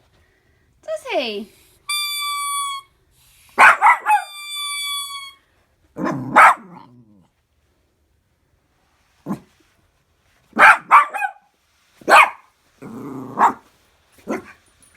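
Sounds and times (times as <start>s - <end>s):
squeaky dog toy squeak: 1.9s - 3.0s, 3.6s - 5.5s
puppy barking: 3.6s - 4.5s, 6.0s - 6.9s, 10.6s - 12.5s, 13.3s - 14.6s
dog whining: 3.6s - 5.5s.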